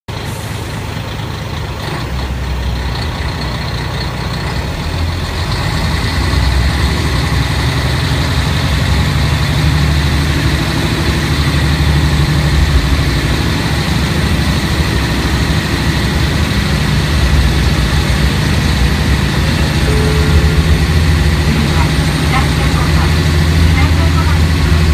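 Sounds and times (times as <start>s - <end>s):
diesel railcar engine drone: 0.1s - 24.9s.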